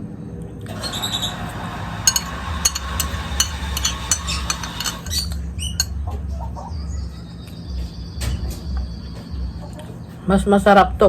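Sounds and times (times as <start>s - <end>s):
short high squeaks: 0.7s - 1.6s, 4.1s - 5.9s
cutlery clinking on a plate: 0.7s - 6.0s.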